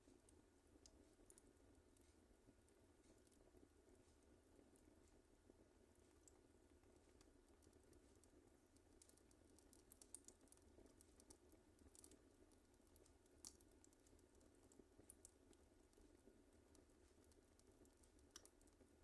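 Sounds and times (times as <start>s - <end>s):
soft low hiss: 0.0s - 19.0s
wood fire crackling: 0.2s - 19.0s.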